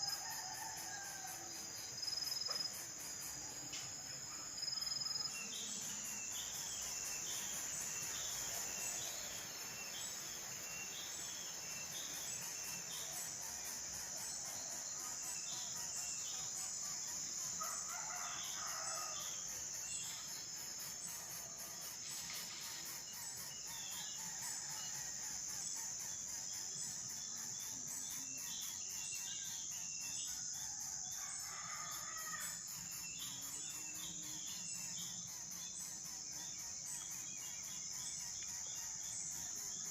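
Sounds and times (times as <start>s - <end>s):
insects trilling: 0.0s - 39.9s
rooster crowing: 31.2s - 32.4s.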